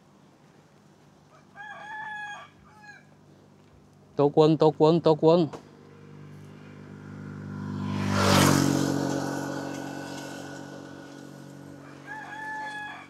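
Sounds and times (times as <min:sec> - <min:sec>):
rooster crowing: 0:01.3 - 0:03.1, 0:11.6 - 0:13.0
motorcycle passing: 0:04.4 - 0:13.0.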